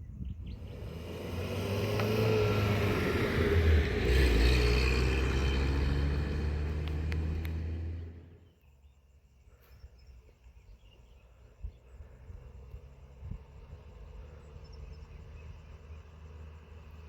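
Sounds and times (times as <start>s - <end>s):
faint outdoor ambience: 0.0s - 17.0s
vehicle engine humming: 0.3s - 8.5s, 11.8s - 17.0s.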